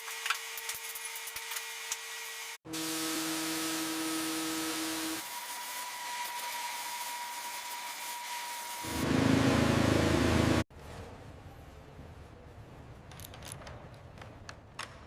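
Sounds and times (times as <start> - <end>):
motor hum: 8.8 - 10.6.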